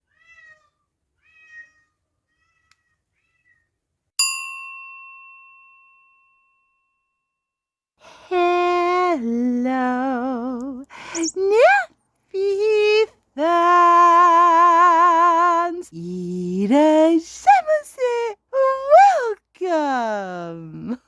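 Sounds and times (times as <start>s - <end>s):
cat meowing: 0.0s - 3.7s
bell ding: 4.2s - 7.3s.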